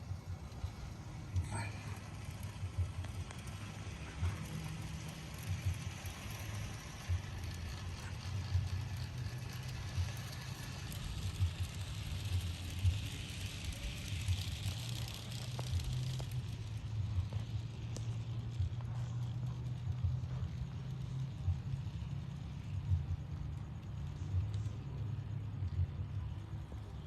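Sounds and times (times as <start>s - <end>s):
toy train motor hum: 0.0s - 25.1s
wheels clicking on track: 0.0s - 27.0s.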